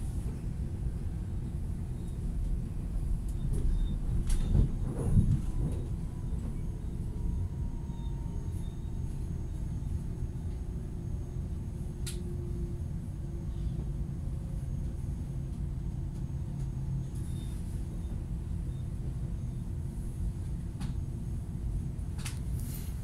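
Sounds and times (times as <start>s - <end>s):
train rumbling inside carriage: 0.0s - 23.0s.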